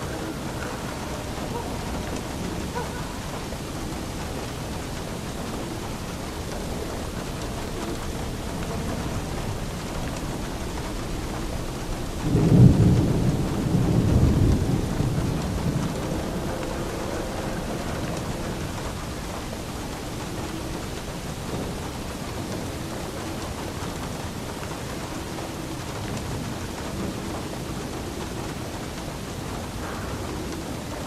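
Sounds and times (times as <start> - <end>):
steady rain falling: 0.0 - 31.0
thunder rumbling: 0.0 - 31.0.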